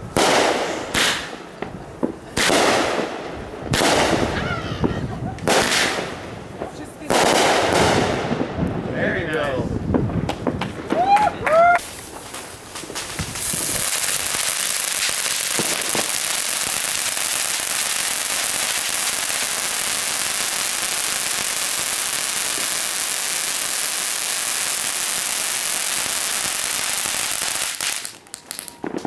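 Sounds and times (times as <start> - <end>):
firework fountain hissing: 9.8 - 29.0.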